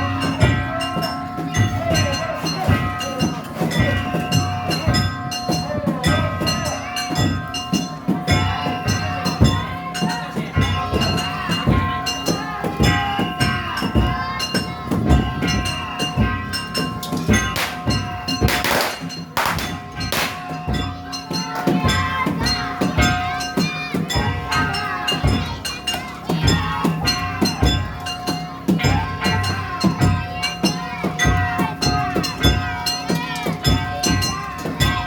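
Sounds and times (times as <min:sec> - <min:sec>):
taiko drums: 0:00.0 - 0:35.0.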